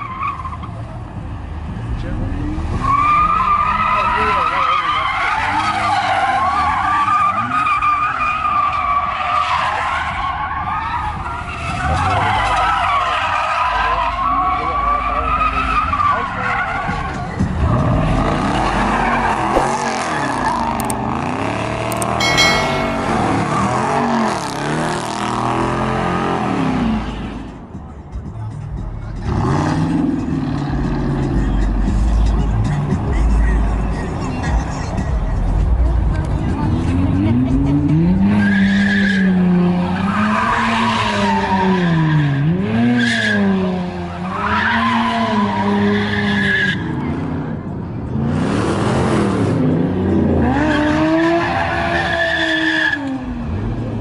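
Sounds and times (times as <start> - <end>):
tires squealing and skidding: 0.0 - 1.0, 2.5 - 19.5, 29.2 - 35.4, 36.6 - 47.5, 48.2 - 53.9.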